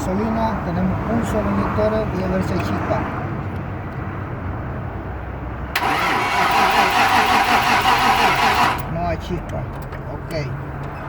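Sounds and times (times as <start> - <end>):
car engine cranking on starter: 5.8 - 8.9.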